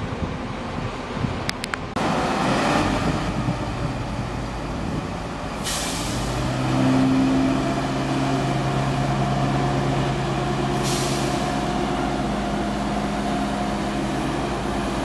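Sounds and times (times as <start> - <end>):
train engine hum: 0.0 - 15.0
train rumbling: 0.0 - 15.0
brake air hissing: 5.6 - 6.4, 10.7 - 11.7.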